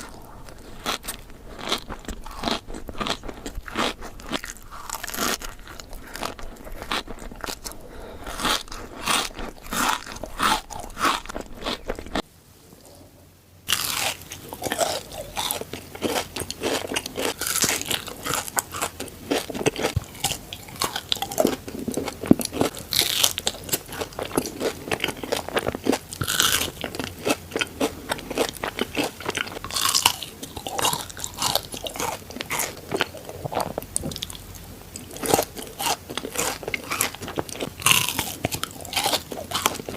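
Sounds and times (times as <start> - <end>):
crunching chocolate bar: 0.0 - 12.2, 13.7 - 39.9.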